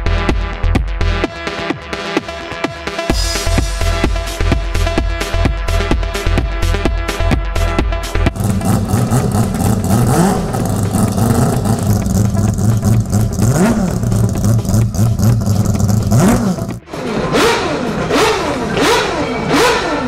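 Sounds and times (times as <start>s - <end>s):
car engine revving: 8.3s - 20.0s.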